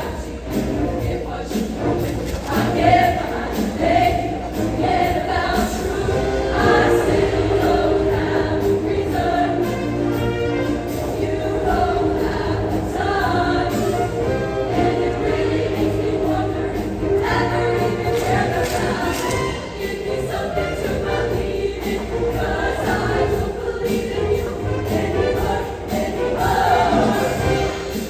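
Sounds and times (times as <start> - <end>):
choir singing: 0.0 - 28.0
instrumental accompaniment: 0.0 - 28.0.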